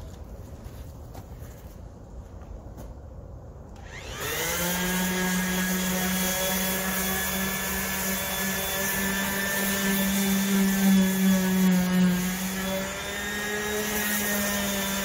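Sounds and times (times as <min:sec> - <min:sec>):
power sander whining: 0:03.8 - 0:15.0.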